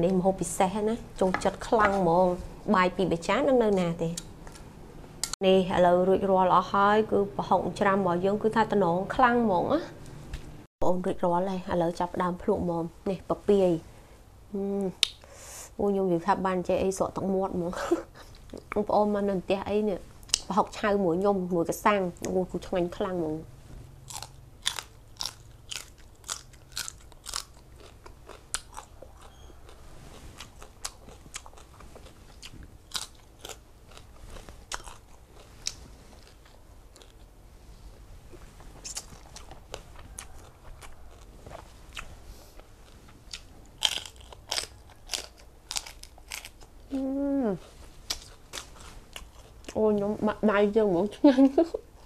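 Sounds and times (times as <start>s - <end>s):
crunching raw vegetables: 24.0s - 50.0s
person humming: 46.9s - 47.6s.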